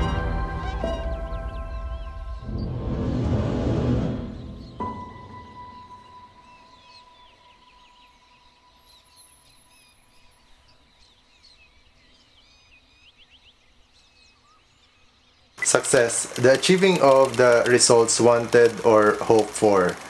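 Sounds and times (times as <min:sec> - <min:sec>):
small birds chirping: 0:00.7 - 0:02.8, 0:04.2 - 0:20.0
quiet outdoor background noise: 0:04.2 - 0:20.0.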